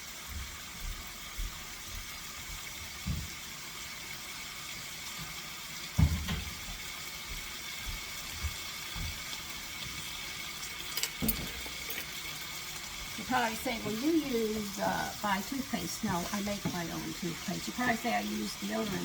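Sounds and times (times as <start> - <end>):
food sizzling in a pan: 0.0 - 19.0
kitchen handling knocks: 11.1 - 12.0.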